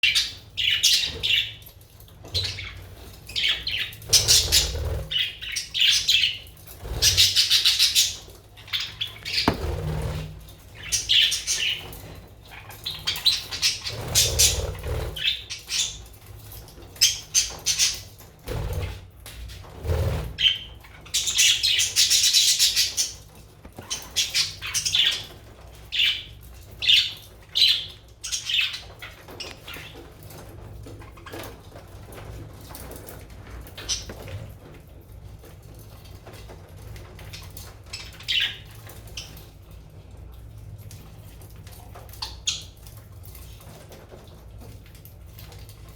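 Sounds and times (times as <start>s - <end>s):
dull thumps: 9.3s - 10.2s.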